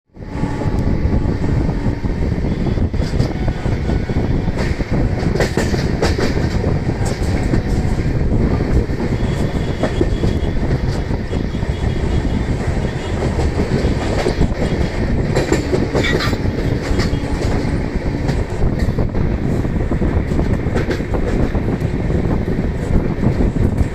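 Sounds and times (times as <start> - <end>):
train wheels rumbling on rails: 0.1 - 23.9
wheels clattering over rail joints: 13.3 - 19.1.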